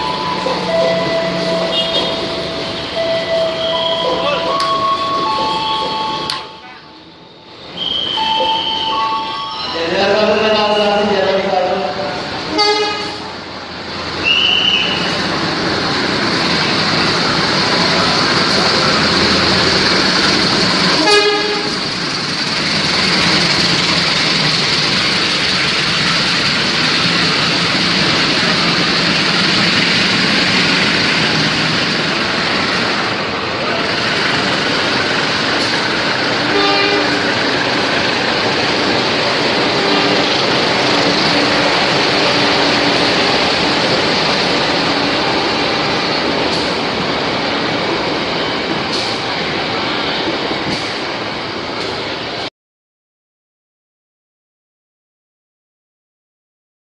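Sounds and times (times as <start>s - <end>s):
train coaches rolling: 0.0s - 52.5s
short train horn toot: 1.0s - 2.2s, 12.5s - 13.2s, 21.0s - 21.8s, 36.5s - 37.2s.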